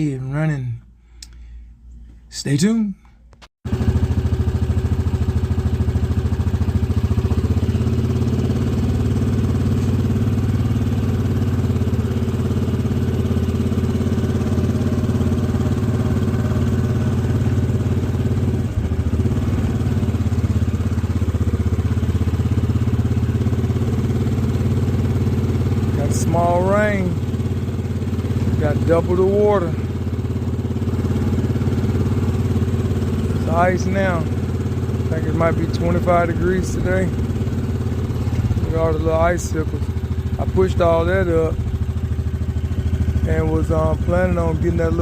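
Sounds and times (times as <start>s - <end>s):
atv engine running: 3.7s - 45.0s.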